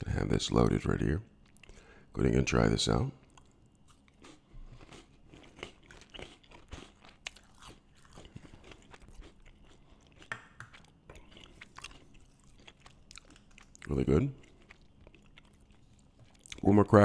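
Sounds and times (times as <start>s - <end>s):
cracker crunching while chewed: 3.2s - 16.7s.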